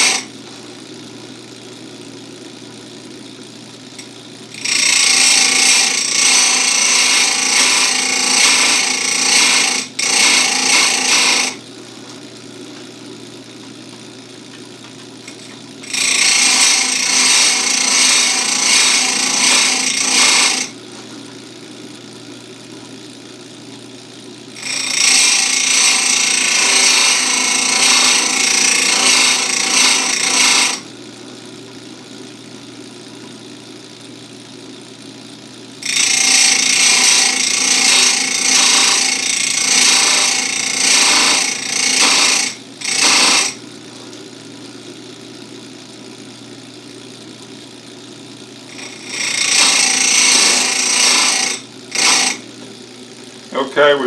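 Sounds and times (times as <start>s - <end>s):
grinder motor humming: 0.0s - 54.0s
grinding wheel on chain teeth: 4.0s - 11.6s, 15.3s - 20.8s, 24.6s - 30.9s, 35.8s - 43.6s, 48.7s - 52.5s.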